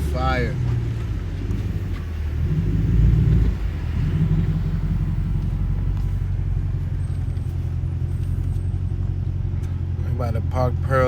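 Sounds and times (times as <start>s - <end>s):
car exhaust low drone: 0.0s - 11.0s.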